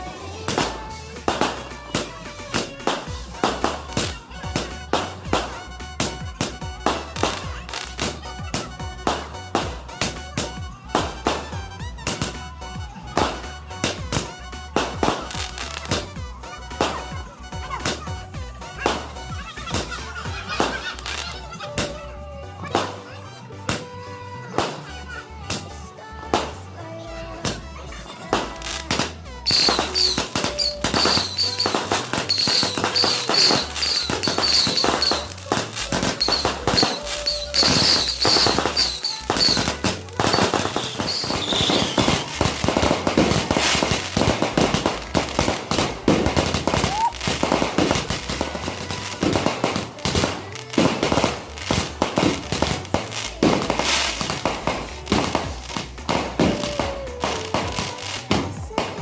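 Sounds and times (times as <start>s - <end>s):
fireworks cracking and popping: 0.0s - 22.0s, 22.6s - 26.7s, 27.4s - 59.0s
high fireworks whistles: 13.2s - 17.2s, 28.6s - 58.4s.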